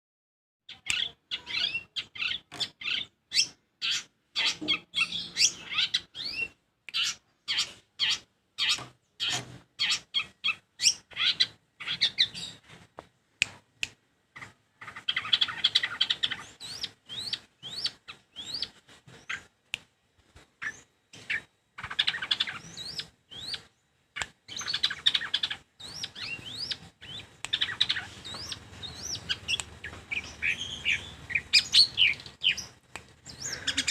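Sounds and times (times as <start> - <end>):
bird singing chattering chirps: 24.5 - 33.9.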